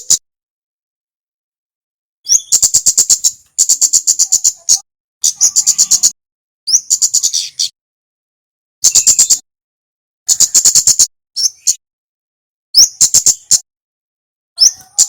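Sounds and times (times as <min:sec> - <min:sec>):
bird singing high ticking notes: 0:02.2 - 0:07.8, 0:08.8 - 0:09.4.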